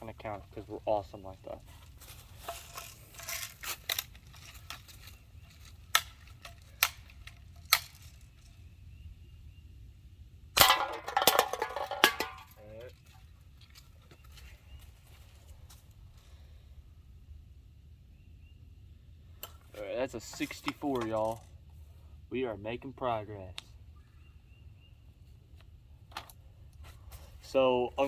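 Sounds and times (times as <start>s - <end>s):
loud crack: 10.6s - 12.5s
cans clattering: 10.6s - 12.6s.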